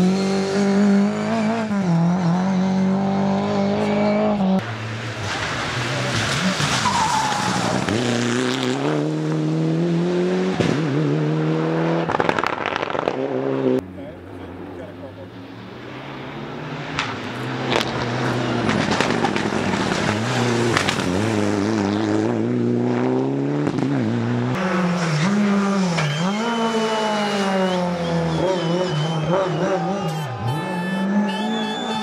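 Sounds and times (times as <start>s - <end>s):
rally car engine revving: 0.0s - 32.0s
sharp exhaust cracks: 12.1s - 13.2s.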